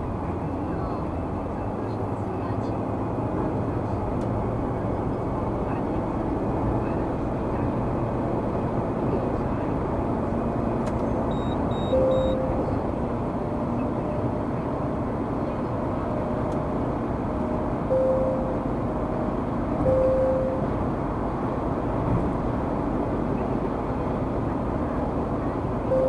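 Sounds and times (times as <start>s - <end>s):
vehicle road and engine noise: 0.0s - 26.0s
short electronic beeps: 11.2s - 12.8s, 17.9s - 18.7s, 19.8s - 20.7s.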